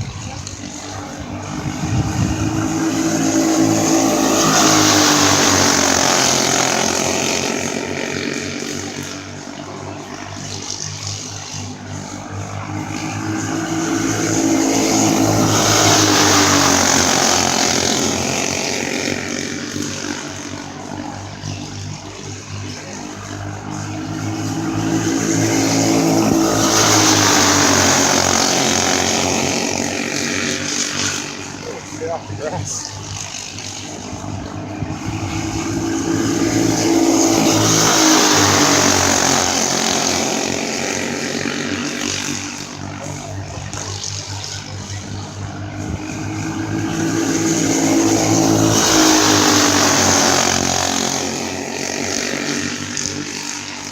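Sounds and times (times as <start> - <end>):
go-kart engines passing: 0.0 - 53.9.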